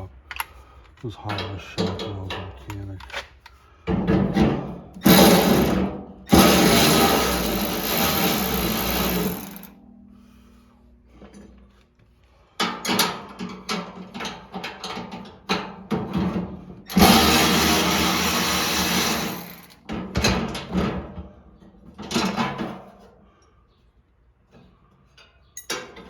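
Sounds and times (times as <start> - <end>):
clicks and metal knocks: 0.2 - 5.3
power drill running: 5.0 - 9.7, 16.9 - 19.8.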